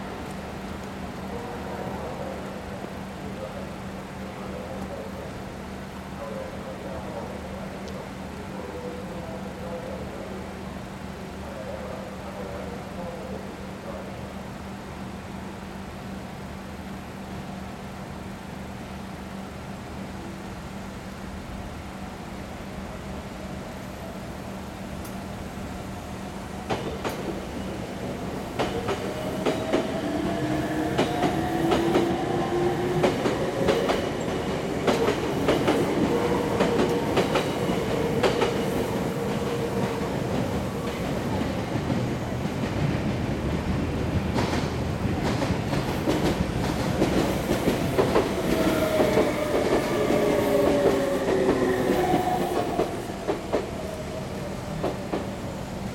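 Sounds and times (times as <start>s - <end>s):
train wheels clicking over joints: 26.6s - 55.4s.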